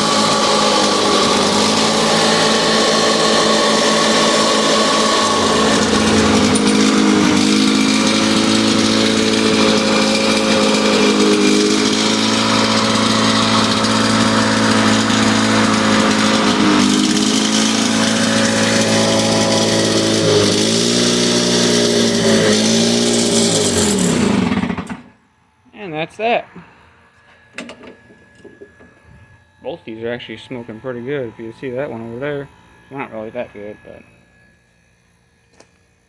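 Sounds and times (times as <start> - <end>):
lawnmower engines at full throttle: 0.0 - 25.1.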